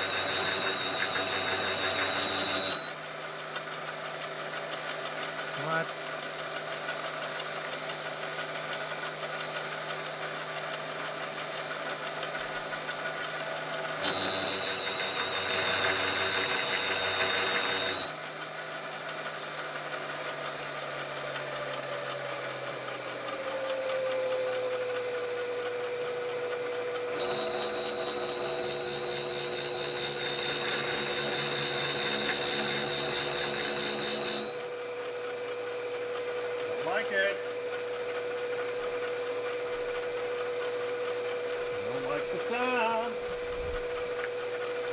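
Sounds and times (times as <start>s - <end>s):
machine tool cutting steel: 0.0s - 2.9s, 14.0s - 18.1s, 27.2s - 34.6s
high whine: 27.2s - 34.7s.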